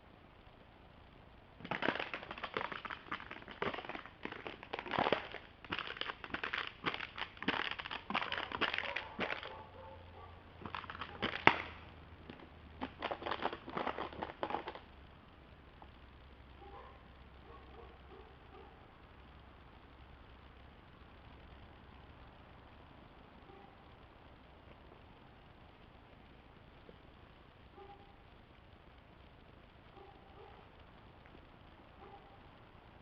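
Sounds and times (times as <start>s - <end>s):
crackling and crunching: 1.6s - 17.9s.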